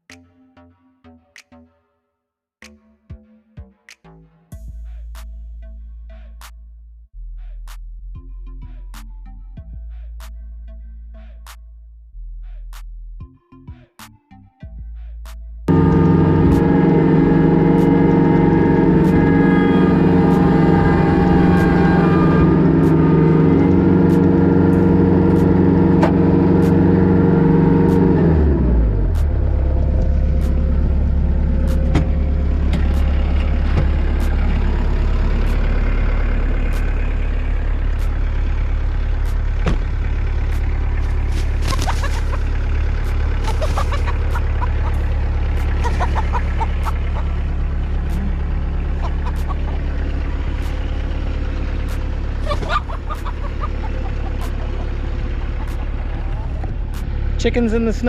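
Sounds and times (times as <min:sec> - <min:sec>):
tractor diesel engine: 0:15.7 - 0:58.0.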